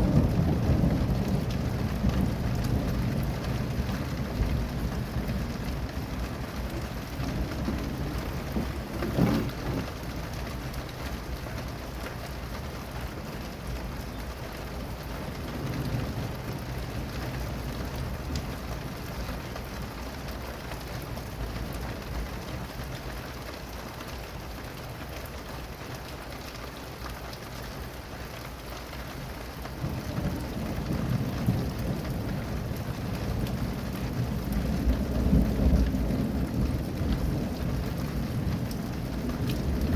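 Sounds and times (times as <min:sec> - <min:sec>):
low rolling thunder: 0:00.0 - 0:11.4, 0:12.4 - 0:19.9, 0:29.8 - 0:39.9
steady rain falling: 0:00.0 - 0:39.9.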